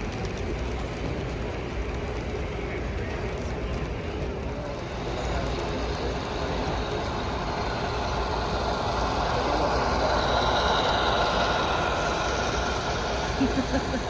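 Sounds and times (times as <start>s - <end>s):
model train motor whir: 0.0s - 14.0s.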